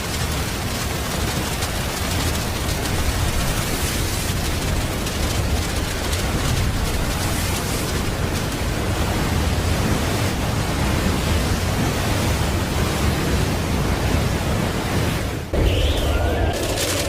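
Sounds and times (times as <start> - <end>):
rumbling roar: 15.6 - 17.0.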